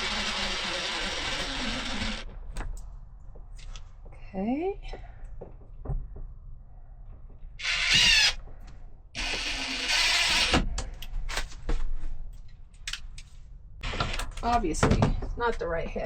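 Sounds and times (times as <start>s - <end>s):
power drill running: 0.0s - 2.3s, 7.6s - 8.4s, 9.2s - 10.7s.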